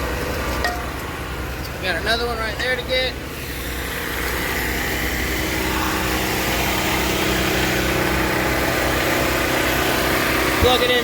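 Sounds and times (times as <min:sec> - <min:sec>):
portable generator engine running: 0:00.0 - 0:11.0.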